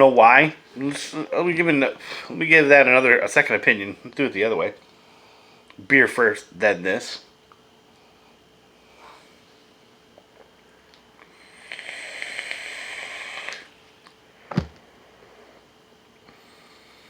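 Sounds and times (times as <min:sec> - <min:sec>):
vape coil crackling sizzle: 0:11.2 - 0:13.8.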